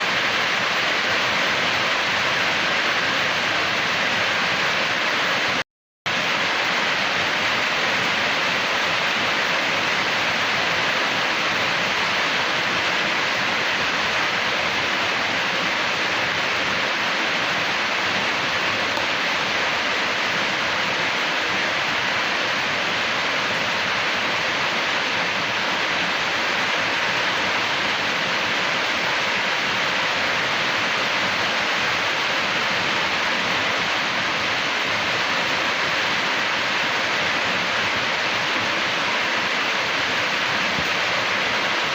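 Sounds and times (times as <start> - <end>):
water rushing: 0.0 - 41.9.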